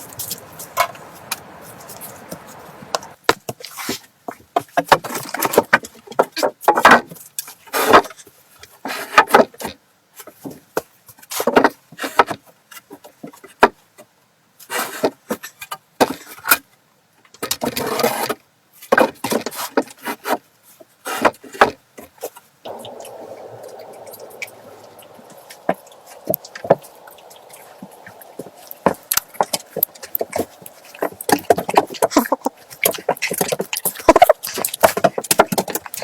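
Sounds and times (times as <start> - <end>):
steady hiss: 0.0 - 3.2, 22.7 - 36.0.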